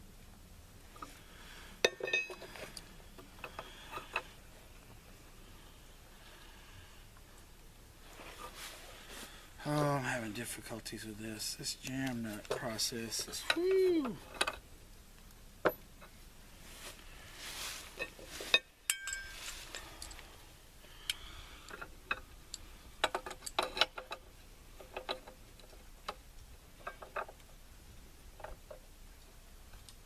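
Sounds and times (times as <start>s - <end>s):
small metallic clicks and clinks: 1.8s - 4.3s, 18.0s - 20.2s, 21.0s - 27.5s.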